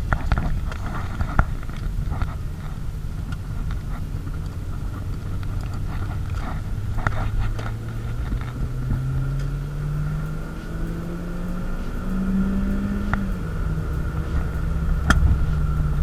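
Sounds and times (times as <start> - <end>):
car engine revving: 0.0 - 16.0
light clicks: 10.2 - 16.0.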